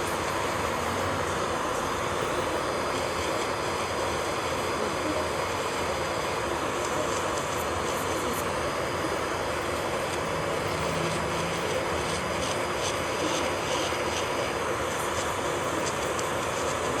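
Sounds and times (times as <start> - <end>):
electric nail drill whirring: 5.3 - 16.9.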